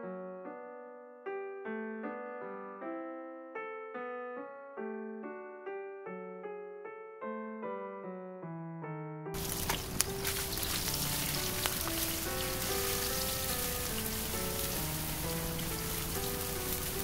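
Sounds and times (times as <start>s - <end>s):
oil popping: 9.4s - 17.0s
tofu sizzling in oil: 9.4s - 17.0s.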